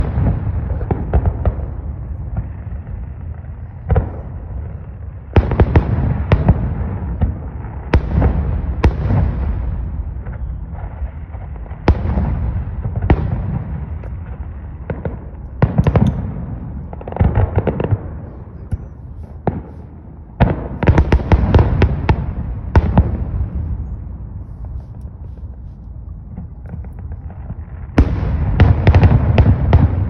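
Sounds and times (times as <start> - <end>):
fireworks bursting: 0.0 - 30.0
low rolling echo: 0.0 - 30.0.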